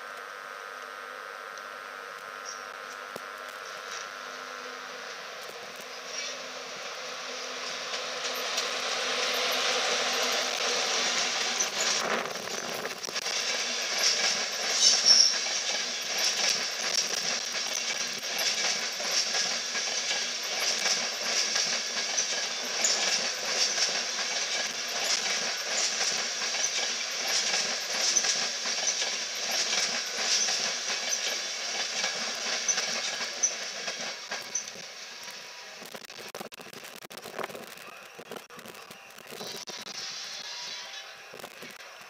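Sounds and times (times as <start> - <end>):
train rolling past: 5.3 - 35.8
wheels clicking over rail joints: 7.9 - 34.9
high wheel squeal: 13.9 - 16.5.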